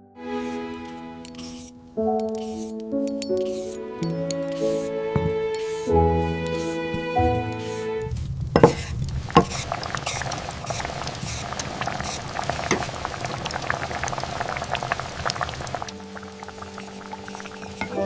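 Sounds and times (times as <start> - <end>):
soft music: 0.0 - 8.1, 15.8 - 18.0
liquid boiling: 8.0 - 18.0.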